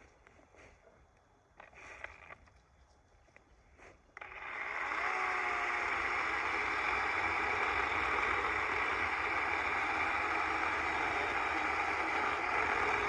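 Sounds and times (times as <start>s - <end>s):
battery chainsaw cutting wood: 4.2s - 13.0s.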